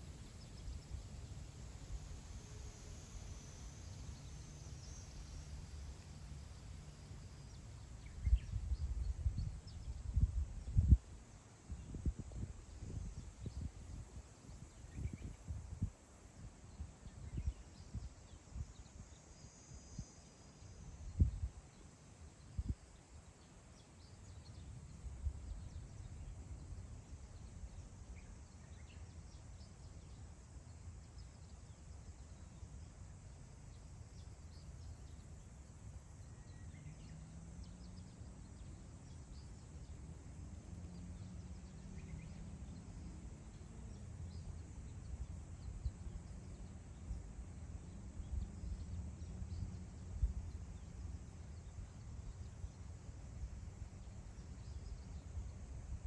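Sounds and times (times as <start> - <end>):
wind rumbling on microphone: 0.0 - 19.1, 20.8 - 21.7, 34.1 - 56.0
faint bird chirps: 33.5 - 40.0.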